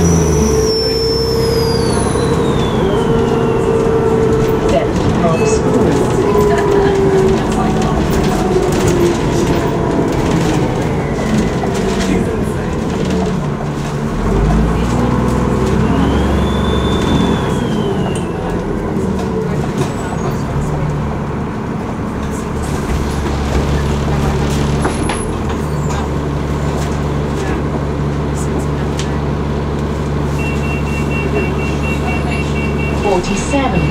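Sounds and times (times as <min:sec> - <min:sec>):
turbocharger whistle: 0:00.0 - 0:03.8, 0:15.8 - 0:18.6, 0:30.4 - 0:33.1
bus engine pulling under load: 0:00.0 - 0:33.9
heavy low rumble: 0:00.0 - 0:33.9.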